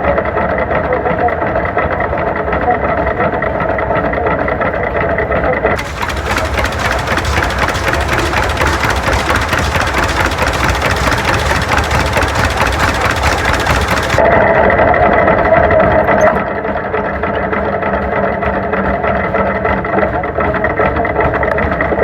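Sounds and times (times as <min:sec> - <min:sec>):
tractor engine running: 0:05.8 - 0:14.3.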